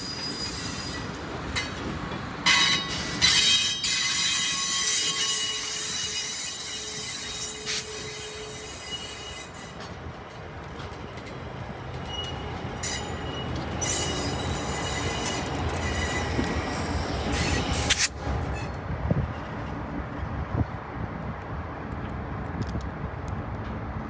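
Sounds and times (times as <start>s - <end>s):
wheels squealing: 0.0s - 1.8s, 2.5s - 10.0s, 10.8s - 18.8s
diesel locomotive engine: 0.0s - 24.0s.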